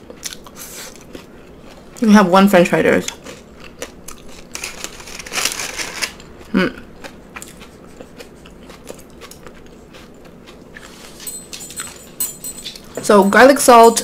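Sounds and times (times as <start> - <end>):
mouth chewing and biting food: 0.0 - 2.0, 3.0 - 12.1.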